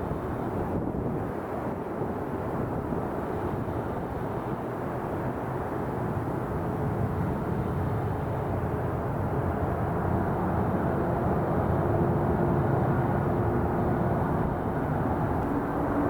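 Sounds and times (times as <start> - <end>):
jet engines rumbling: 7.7 - 16.0.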